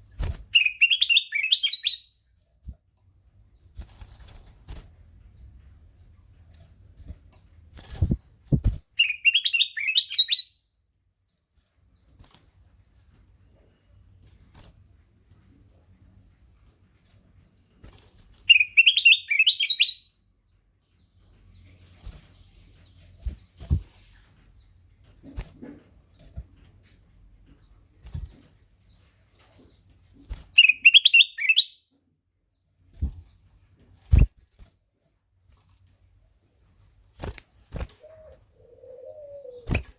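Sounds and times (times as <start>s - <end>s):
bird singing whistled notes: 0.5s - 2.2s, 8.0s - 10.6s, 18.4s - 20.2s, 28.6s - 32.0s.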